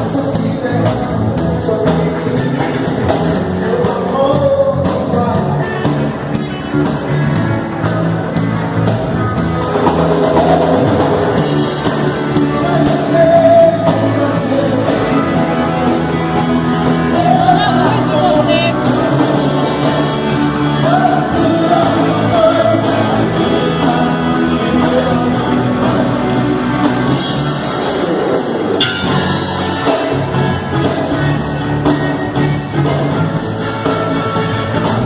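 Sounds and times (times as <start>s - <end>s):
rock band playing: 0.0s - 35.0s
person singing: 16.8s - 26.3s.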